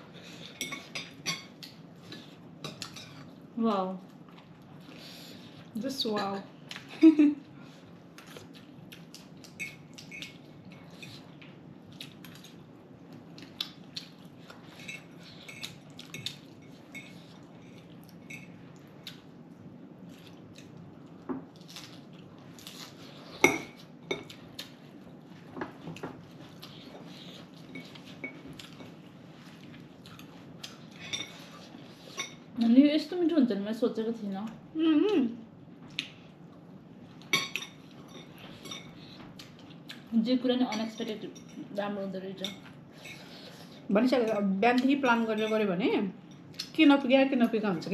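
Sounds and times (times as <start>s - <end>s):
faint room hum: 0.0s - 47.9s
dishes and cutlery clinking: 0.4s - 1.8s, 9.5s - 11.2s, 14.6s - 18.6s, 30.9s - 32.5s, 37.2s - 39.3s.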